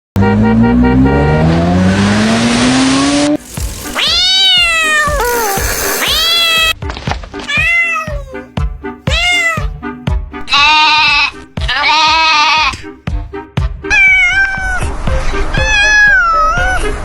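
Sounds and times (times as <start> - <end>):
motor engine revving: 1.2 - 6.6
cat meowing: 3.6 - 6.8, 7.5 - 8.5, 9.1 - 9.8, 10.5 - 12.7, 13.9 - 14.9, 15.5 - 16.8
music with steady beat: 12.7 - 13.8.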